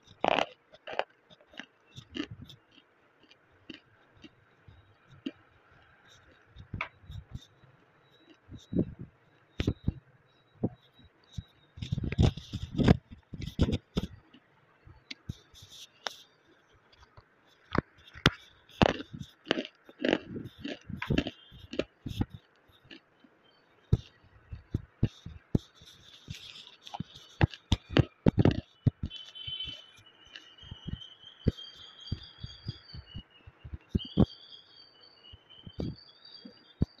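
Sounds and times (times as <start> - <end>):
crunchy chewing of clay: 0.0 - 10.0, 10.6 - 34.5
chewing and swallowing: 0.1 - 4.3, 17.7 - 23.1.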